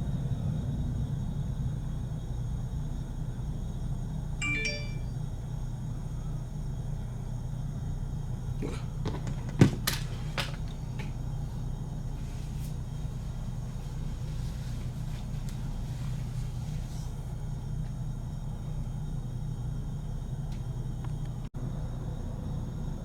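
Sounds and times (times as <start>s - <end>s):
electronic ding-dong chime: 4.4s - 5.2s.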